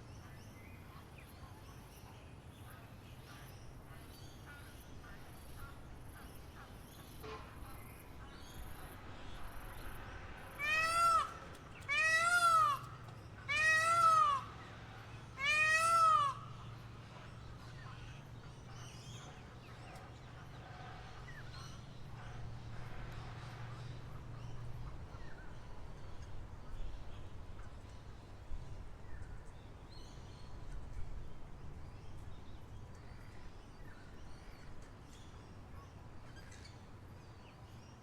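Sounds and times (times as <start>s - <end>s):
loud meow-like calls: 10.6s - 12.9s, 13.5s - 14.5s, 15.4s - 16.5s.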